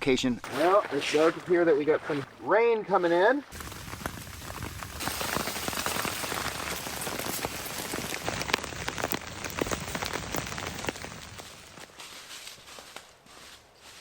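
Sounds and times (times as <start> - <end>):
rain falling: 3.5 - 11.8.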